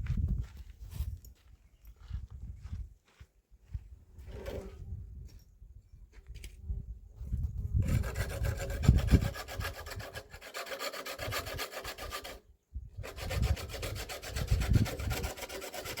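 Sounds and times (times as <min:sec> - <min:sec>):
fast rasping scrapes: 0:07.7 - 0:12.4, 0:13.0 - 0:16.0.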